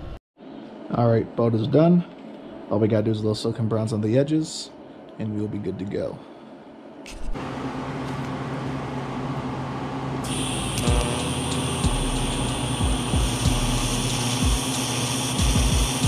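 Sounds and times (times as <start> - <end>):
electrical hum: 0.0 - 16.0
welding arc hissing and buzzing: 10.2 - 16.0.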